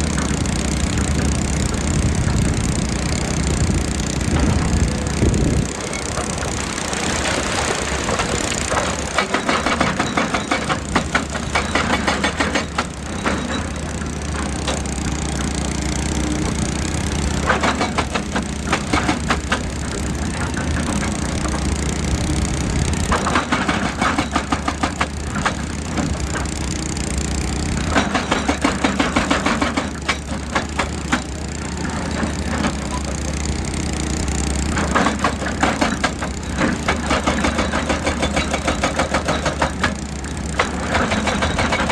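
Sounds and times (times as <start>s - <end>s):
excavator diesel engine running: 0.0s - 41.9s
rapid knocking: 8.1s - 13.1s.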